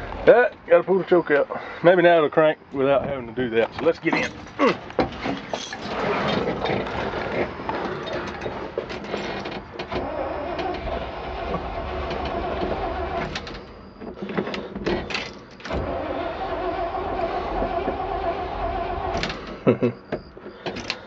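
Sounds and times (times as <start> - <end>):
starter motor cranking engine: 9.0 - 13.7, 15.7 - 19.6.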